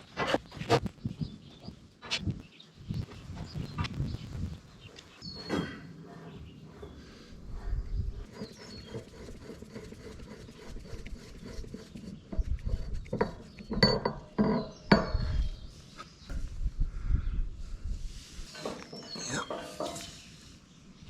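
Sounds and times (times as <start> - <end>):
metal clanks: 13.1 - 15.4, 18.5 - 20.2.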